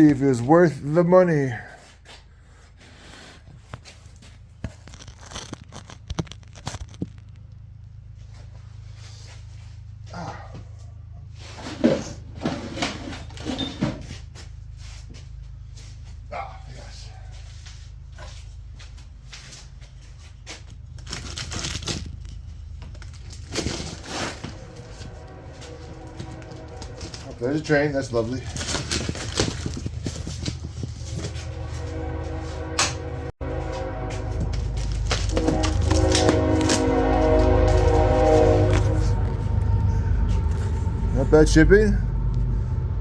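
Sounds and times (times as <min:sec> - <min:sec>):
cardboard box being torn open: 0:04.7 - 0:07.2, 0:21.0 - 0:22.4, 0:28.5 - 0:30.6
cardboard tearing and crumpling: 0:04.7 - 0:07.4, 0:20.8 - 0:24.6, 0:28.1 - 0:31.4, 0:34.6 - 0:36.9.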